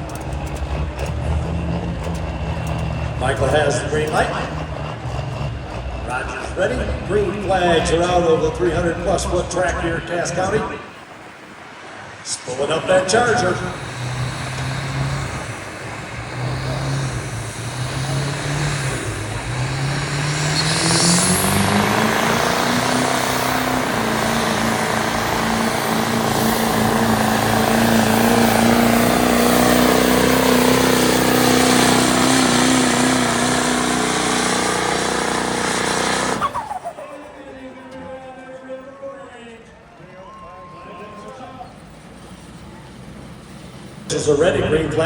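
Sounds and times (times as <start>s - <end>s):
diesel truck engine under load: 0.0s - 45.0s
turbocharger whistle: 13.4s - 37.4s.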